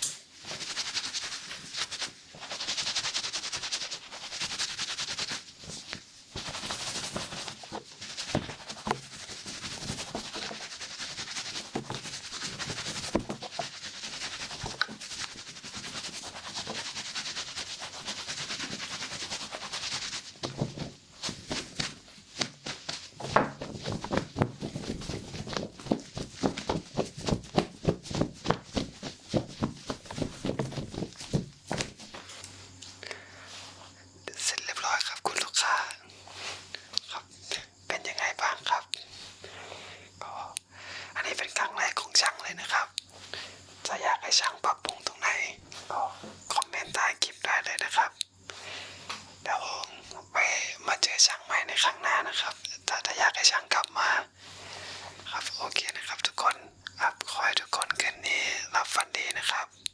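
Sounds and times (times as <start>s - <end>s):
brushing hissing rub: 0.0s - 32.8s
fast clicking and tapping: 6.4s - 32.1s.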